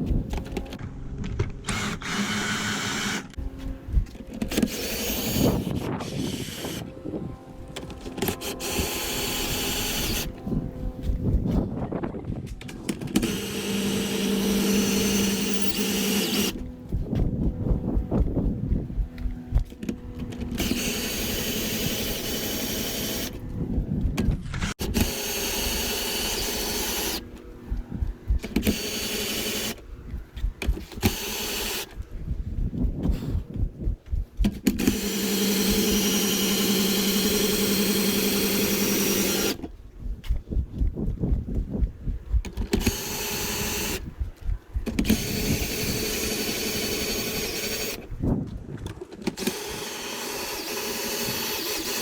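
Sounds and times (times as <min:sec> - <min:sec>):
power drill running: 0:01.6 - 0:03.4, 0:04.2 - 0:06.8, 0:07.9 - 0:10.4, 0:12.8 - 0:16.7, 0:19.5 - 0:23.4, 0:24.5 - 0:27.5, 0:28.3 - 0:29.8, 0:30.6 - 0:32.0, 0:34.4 - 0:39.7, 0:42.7 - 0:44.1, 0:44.8 - 0:48.1, 0:49.3 - 0:52.0.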